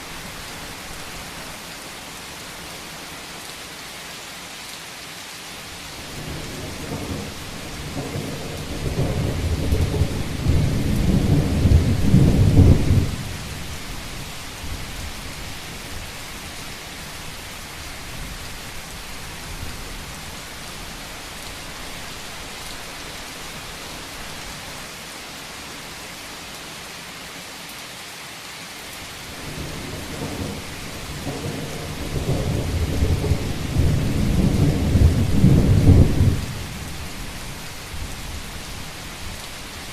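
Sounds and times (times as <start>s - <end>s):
rain on a roof: 0.0s - 39.9s
thunder rolling: 6.2s - 13.3s, 29.4s - 36.7s.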